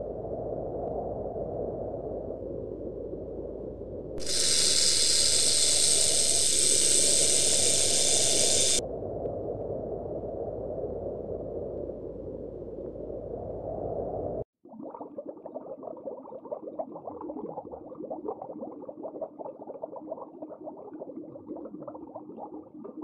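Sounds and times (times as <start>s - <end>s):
snake hissing: 4.2s - 8.8s.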